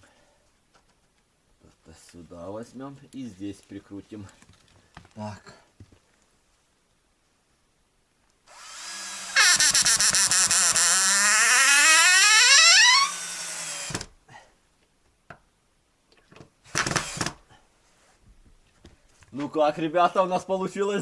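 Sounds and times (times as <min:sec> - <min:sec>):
drill driving screw into wood: 0:08.5 - 0:14.1, 0:16.7 - 0:17.4.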